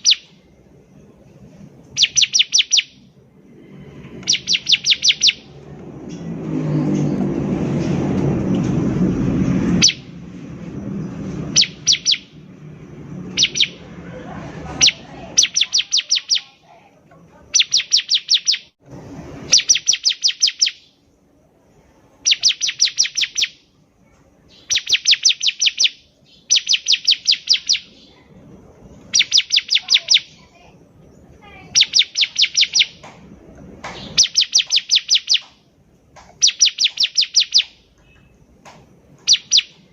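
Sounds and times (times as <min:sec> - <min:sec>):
bird chirping high: 0:00.0 - 0:06.4, 0:09.0 - 0:16.8, 0:17.4 - 0:18.8, 0:19.4 - 0:23.8, 0:24.4 - 0:39.9
loud low rushing noise: 0:03.0 - 0:15.4.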